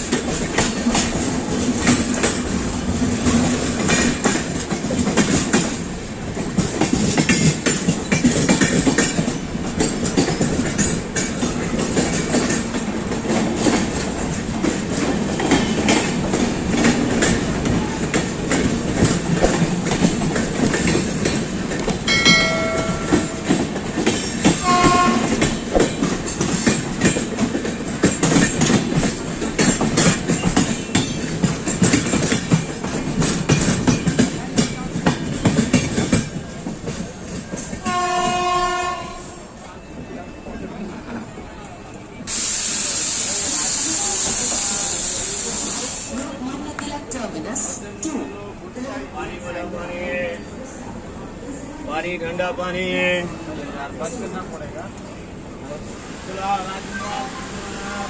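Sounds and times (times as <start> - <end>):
train wheels clattering: 0.0 - 39.0
train horn blasts: 24.6 - 25.5, 37.8 - 39.5.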